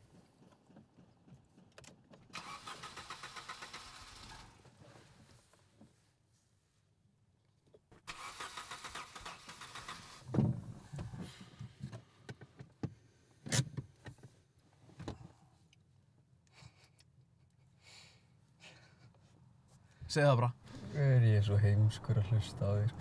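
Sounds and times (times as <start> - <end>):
diesel engine sputtering and dying: 2.3 - 4.6, 8.1 - 10.3.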